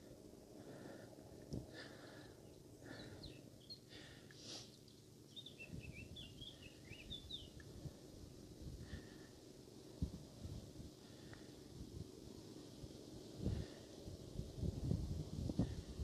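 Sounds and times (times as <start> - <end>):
birds chirping and twittering: 0.0 - 8.1.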